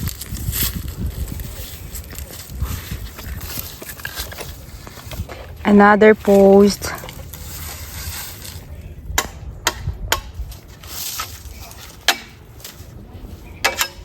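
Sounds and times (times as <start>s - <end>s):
bamboo post wooden knocks: 9.2s - 10.4s, 12.0s - 12.4s.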